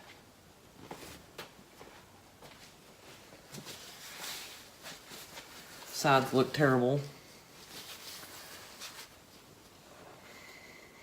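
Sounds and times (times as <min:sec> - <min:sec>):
soft rustle: 0:00.8 - 0:10.8.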